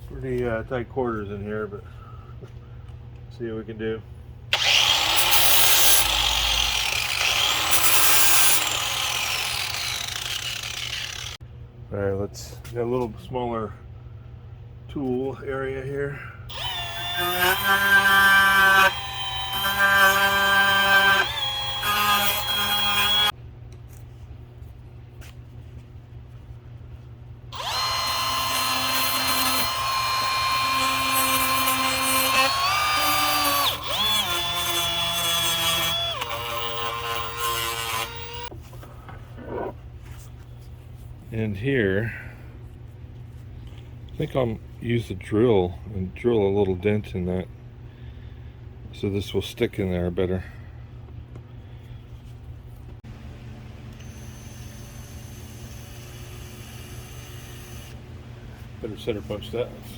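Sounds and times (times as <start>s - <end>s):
power tool high whine: 4.5s - 11.4s, 16.5s - 23.3s, 27.6s - 38.5s, 53.9s - 58.0s
angle grinder grinding metal: 4.6s - 11.4s, 16.5s - 23.3s, 27.6s - 38.5s.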